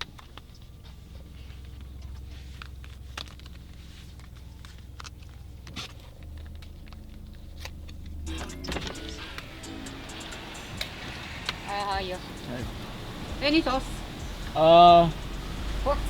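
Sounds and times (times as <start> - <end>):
car engine idling: 0.0 - 16.0
raindrops ticking on car: 7.9 - 16.0.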